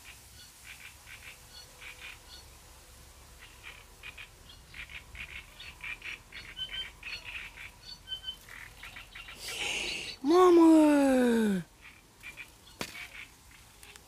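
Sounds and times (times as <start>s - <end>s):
small birds chattering: 3.4s - 10.3s, 11.1s - 14.0s.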